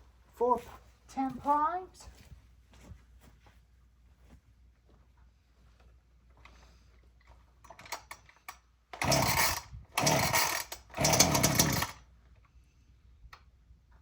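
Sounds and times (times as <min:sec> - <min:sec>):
recoil starter cord pulls: 0:07.6 - 0:12.5
chainsaw engine turning over: 0:07.7 - 0:12.1.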